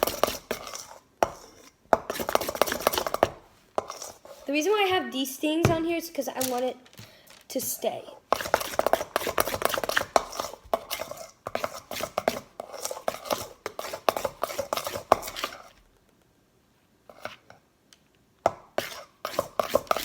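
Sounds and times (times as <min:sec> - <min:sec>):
spoon scraping a bowl: 0:00.0 - 0:04.6, 0:08.3 - 0:15.8, 0:17.1 - 0:17.5, 0:18.8 - 0:20.0.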